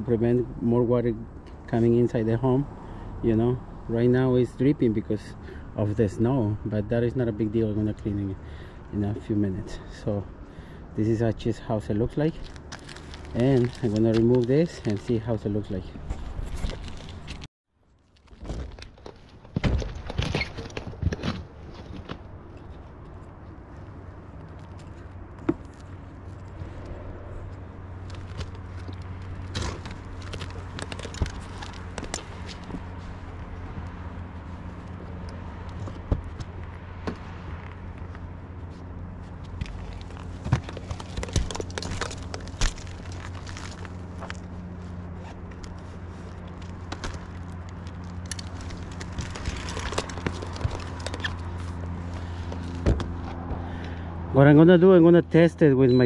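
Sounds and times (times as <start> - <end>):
knocks and rustling of building material: 16.0 - 23.4, 28.0 - 38.2, 38.8 - 53.5
handling knocks and clicks: 39.4 - 44.5, 45.4 - 53.5.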